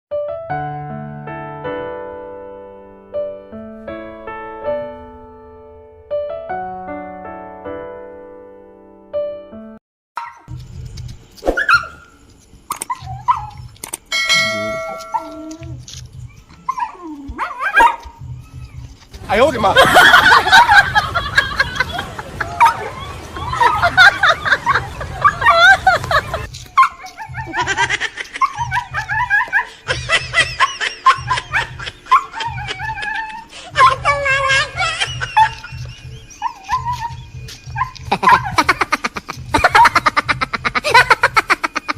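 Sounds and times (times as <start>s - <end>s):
dog yelping and whining: 11.5s - 12.1s, 12.7s - 19.0s, 22.6s - 24.2s, 25.2s - 38.8s
bell-like ding: 14.1s - 15.5s.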